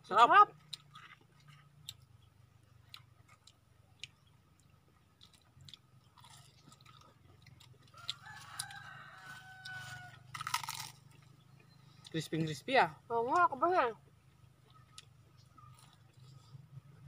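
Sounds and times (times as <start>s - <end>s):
crunching and chewing fritters: 0.1s - 12.6s, 13.2s - 17.0s
rooster crowing: 7.9s - 10.5s.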